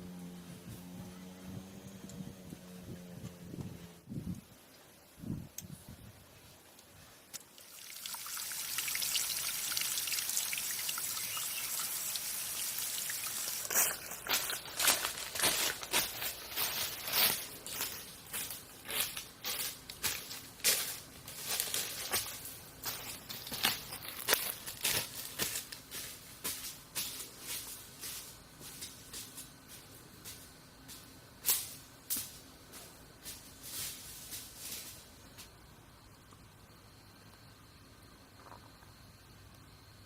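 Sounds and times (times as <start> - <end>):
water pouring: 7.4 - 14.1.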